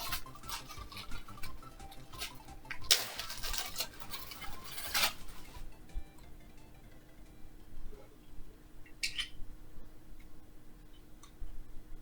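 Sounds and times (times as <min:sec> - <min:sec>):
rustling: 0:00.0 - 0:05.8
small hard objects clinking: 0:00.0 - 0:05.8.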